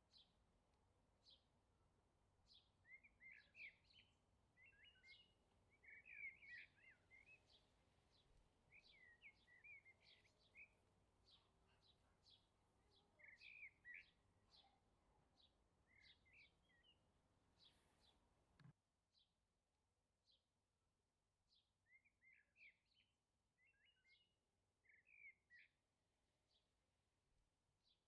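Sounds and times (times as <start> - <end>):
birds chirping and twittering: 2.5 - 18.7, 21.9 - 23.0, 23.6 - 24.2, 24.8 - 25.7.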